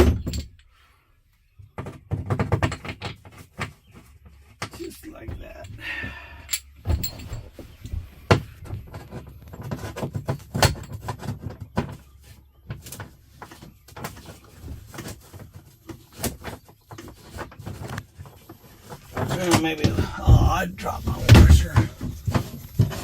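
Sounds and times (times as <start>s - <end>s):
metal tools knocking and rattling: 0.0s - 0.6s, 6.5s - 12.0s.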